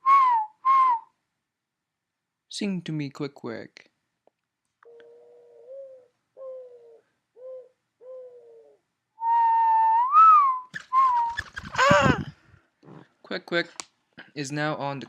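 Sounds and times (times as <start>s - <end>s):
rising and falling whistle: 0.0s - 1.1s, 9.2s - 12.0s
dove cooing: 4.8s - 12.3s.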